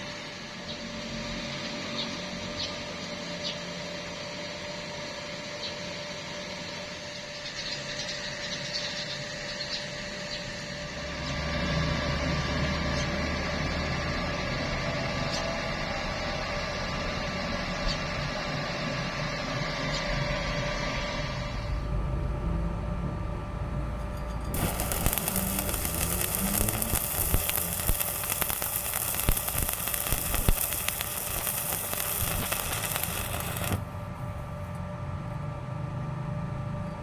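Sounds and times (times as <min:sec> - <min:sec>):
arc welding hiss and crackles: 0:24.0 - 0:34.8.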